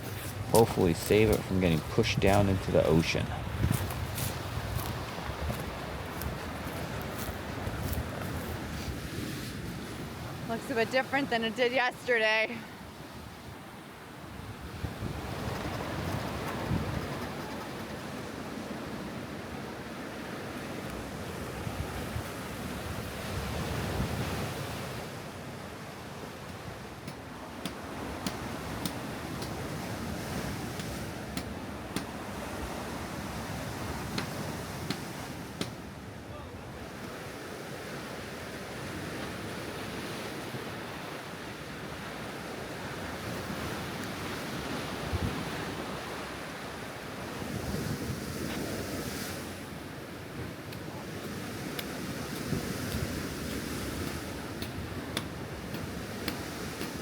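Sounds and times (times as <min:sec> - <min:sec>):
wind buffeting microphone: 0:00.0 - 0:11.6, 0:14.2 - 0:25.0, 0:42.8 - 0:46.3
ocean surf: 0:00.0 - 0:57.0.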